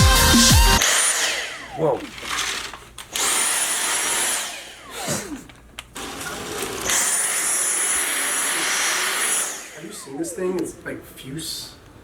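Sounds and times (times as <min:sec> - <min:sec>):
vacuum cleaner motor whine: 0:00.8 - 0:05.4, 0:06.0 - 0:10.8.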